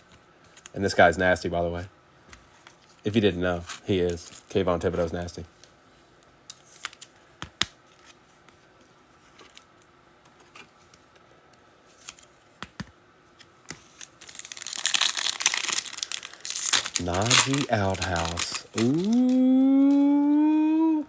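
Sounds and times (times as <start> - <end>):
foil wrapper crinkling: 13.7 - 20.1
cards clicking and snapping: 14.5 - 20.0.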